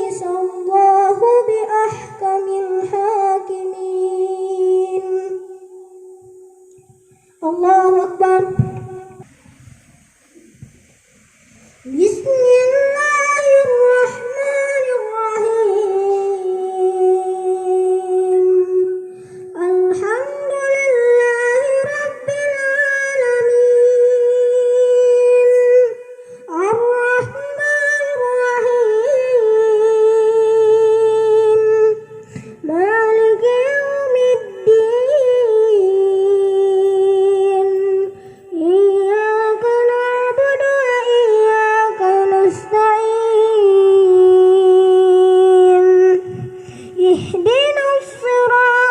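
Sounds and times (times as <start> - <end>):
boy chanting melodic recitation: 0.0 - 9.5, 11.6 - 48.9.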